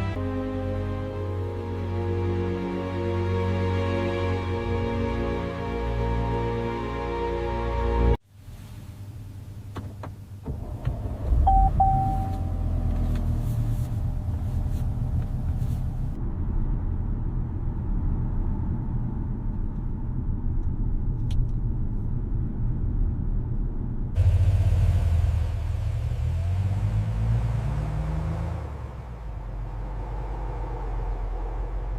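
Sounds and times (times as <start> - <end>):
car engine starting and idling: 9.2 - 31.9.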